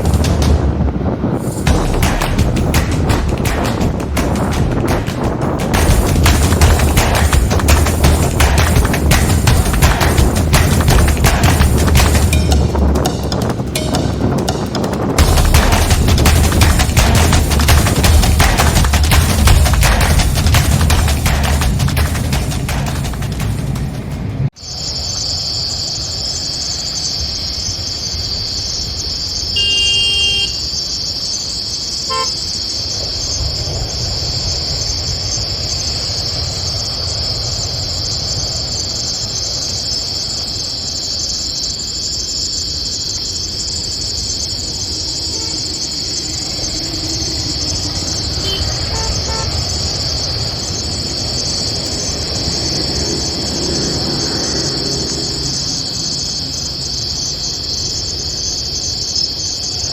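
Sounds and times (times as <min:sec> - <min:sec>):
low rumble: 0:00.0 - 0:24.5
crickets chirping: 0:00.0 - 0:59.9
short horn toot: 0:29.6 - 0:30.6.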